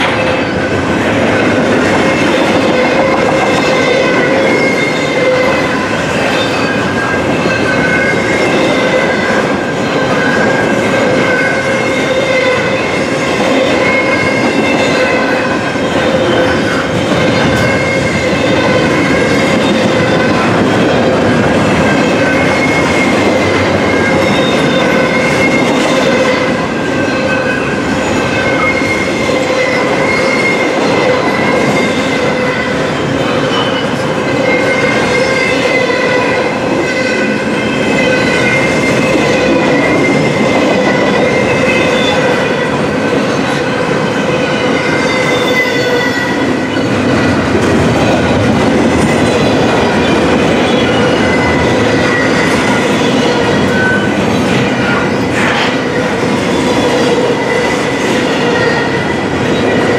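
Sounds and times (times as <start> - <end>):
freight train wheels clattering: 0.0 - 59.9
wheels squealing: 49.0 - 55.8.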